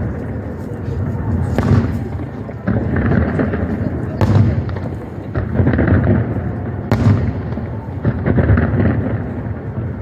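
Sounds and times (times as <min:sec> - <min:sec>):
fireworks booms and crackling: 0:00.0 - 0:10.0
sharp firework bang: 0:01.5 - 0:02.2, 0:04.2 - 0:05.0, 0:06.9 - 0:09.0.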